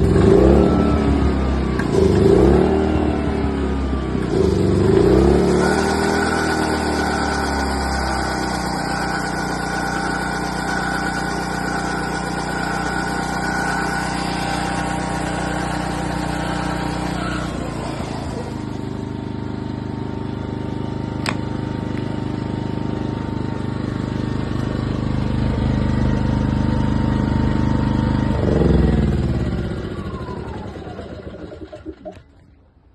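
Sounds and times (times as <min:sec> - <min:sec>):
generator engine running: 0:00.0 - 0:32.9.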